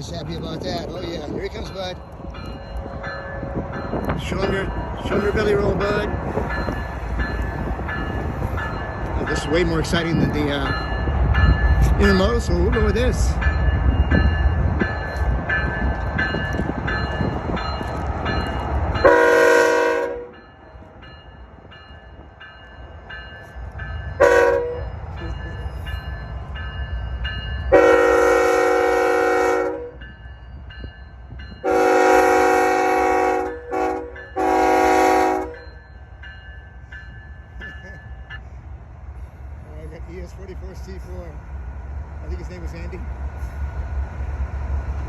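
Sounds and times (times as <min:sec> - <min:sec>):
locomotive bell ringing: 0:00.0 - 0:41.5
locomotive air horn blasts: 0:19.0 - 0:20.3, 0:24.2 - 0:24.8, 0:27.7 - 0:30.0, 0:31.6 - 0:35.6.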